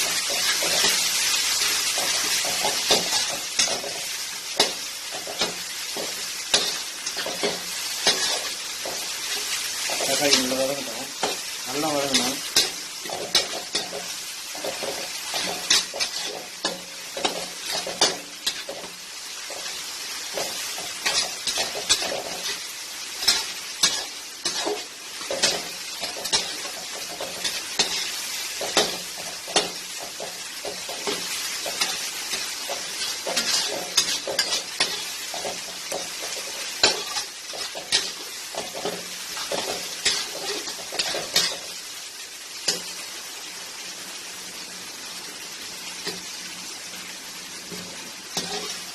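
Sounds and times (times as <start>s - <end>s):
vegetables sizzling in oil: 0.0s - 48.9s
utensil scraping a pan: 12.0s - 18.9s, 23.2s - 41.6s.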